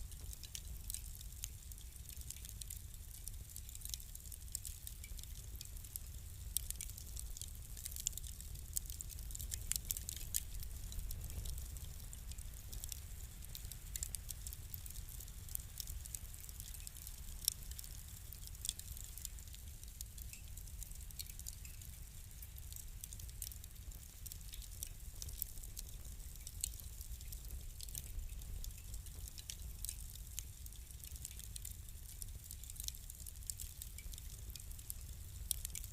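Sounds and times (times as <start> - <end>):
fire crackling and popping: 0.0 - 35.9
low steady rumble: 5.2 - 18.3.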